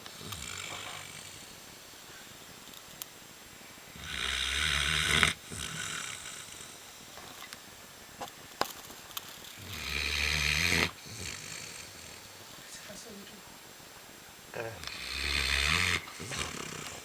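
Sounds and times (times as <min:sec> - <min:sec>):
dog snoring: 0:00.1 - 0:01.6, 0:03.9 - 0:06.8, 0:09.6 - 0:12.4, 0:14.6 - 0:17.0.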